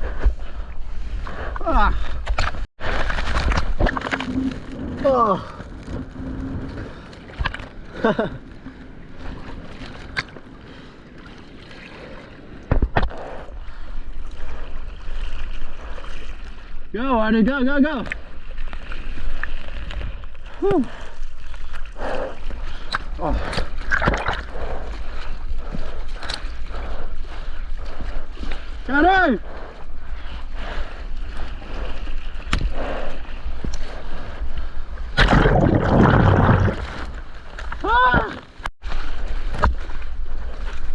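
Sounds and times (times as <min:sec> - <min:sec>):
wind rumble on microphone: 0:00.0 - 0:17.0, 0:18.1 - 0:40.9
water splashing and sloshing: 0:00.0 - 0:40.9
rush of churning water: 0:35.1 - 0:38.4.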